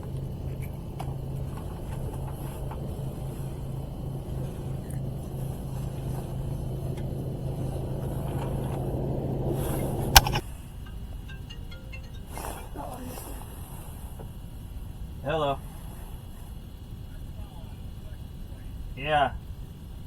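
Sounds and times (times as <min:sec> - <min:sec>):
motor hum: 0:00.0 - 0:10.4
sharp click: 0:10.2 - 0:10.4.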